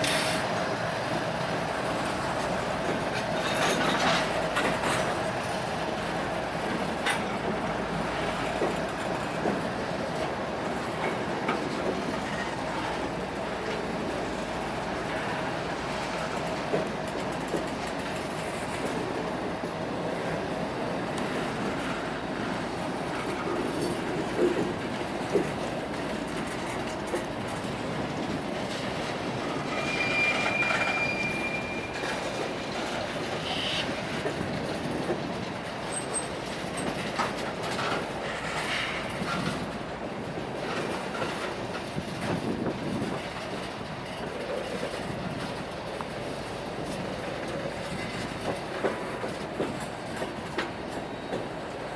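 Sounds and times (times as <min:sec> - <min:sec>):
railroad cars rumbling past: 0:00.0 - 0:51.9
high wheel squeal: 0:29.4 - 0:32.2, 0:33.4 - 0:33.9.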